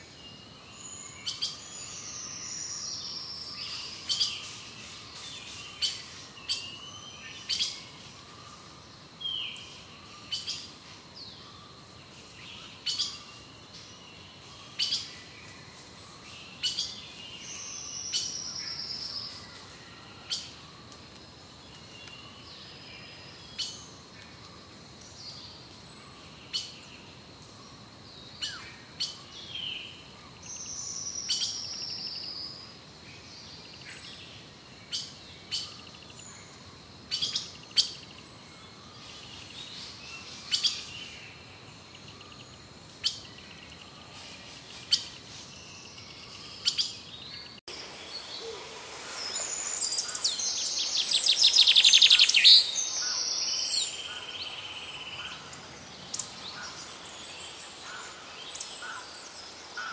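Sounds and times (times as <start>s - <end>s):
bird song of rapid notes: 49.1s - 59.9s.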